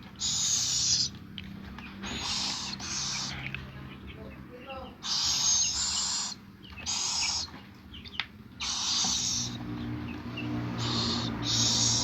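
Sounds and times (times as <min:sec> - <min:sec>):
baby bird hissing begging calls: 0:00.2 - 0:01.2, 0:02.0 - 0:03.5, 0:05.0 - 0:07.5, 0:08.6 - 0:09.6, 0:10.4 - 0:12.0.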